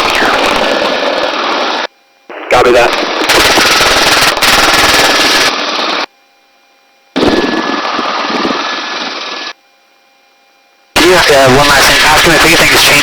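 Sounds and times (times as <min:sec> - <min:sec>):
helicopter rotor chopping: 0:00.0 - 0:01.9, 0:02.5 - 0:06.1, 0:07.2 - 0:09.6, 0:11.0 - 0:13.0.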